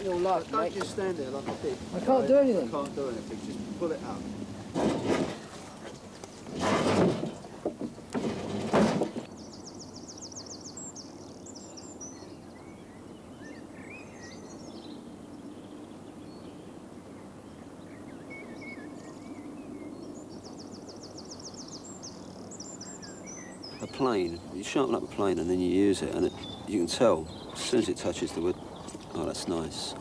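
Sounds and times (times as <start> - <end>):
birds chirping: 0.0 - 30.0
songbird trilling: 21.4 - 29.9.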